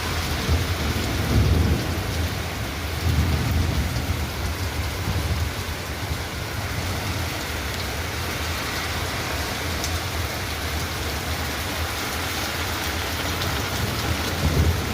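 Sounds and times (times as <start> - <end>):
heavy rain pouring: 0.0 - 14.9.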